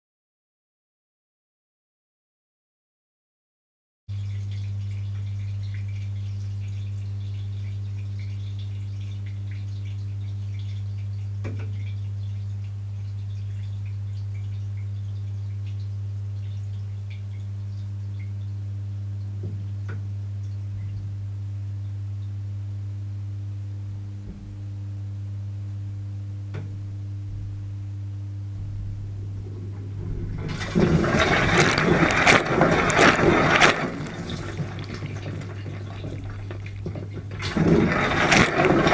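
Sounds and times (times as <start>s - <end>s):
dishwasher motor hum: 4.1s - 22.3s, 23.9s - 25.1s, 25.7s - 38.9s
water spraying in dishwasher: 29.2s - 38.9s.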